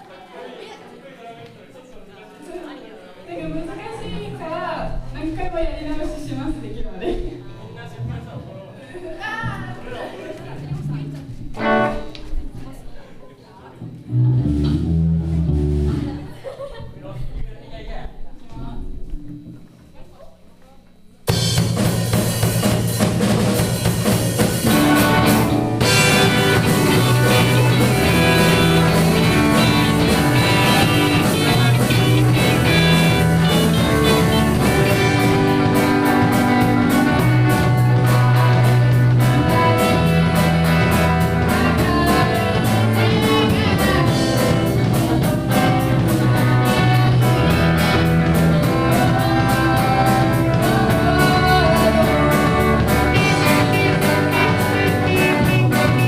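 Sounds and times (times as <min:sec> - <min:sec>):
band playing: 0:10.8 - 0:12.2, 0:14.1 - 0:16.3, 0:21.3 - 0:56.0.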